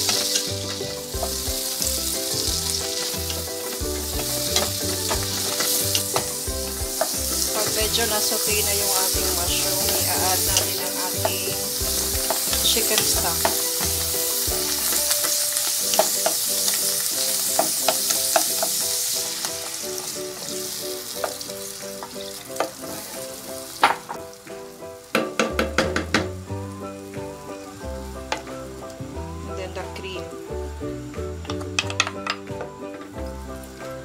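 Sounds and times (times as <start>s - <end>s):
spatula knocking and scraping pan: 0.0s - 16.5s
food sizzling in a frying pan: 0.0s - 34.0s
light background music: 0.0s - 34.0s.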